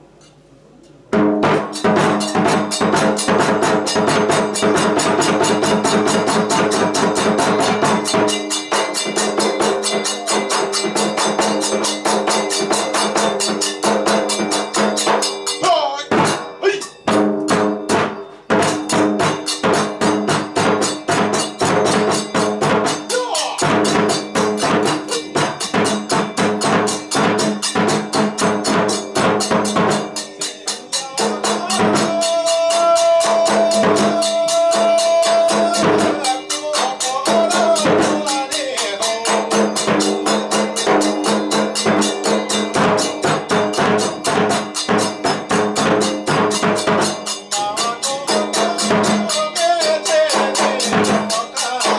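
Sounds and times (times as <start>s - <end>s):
small hand cymbals: 0.0s - 51.9s
drum beat: 1.1s - 51.9s.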